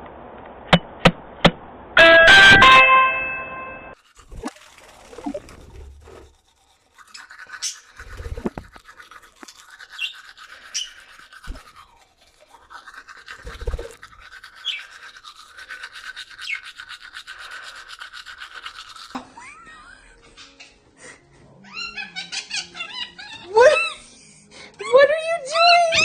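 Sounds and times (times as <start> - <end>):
bird chirping: 14.6 - 14.9.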